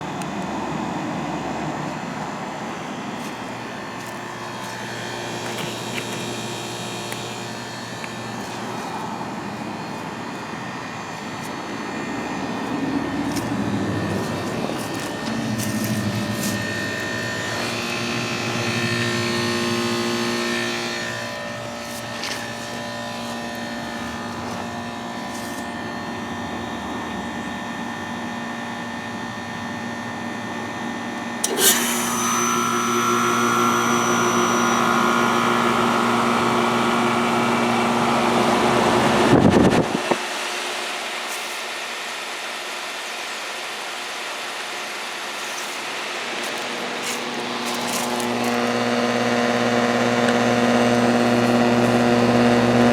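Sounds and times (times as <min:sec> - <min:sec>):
heat pump unit humming: 0:00.0 - 0:52.9
refrigerant hissing: 0:12.3 - 0:25.8, 0:44.4 - 0:49.1.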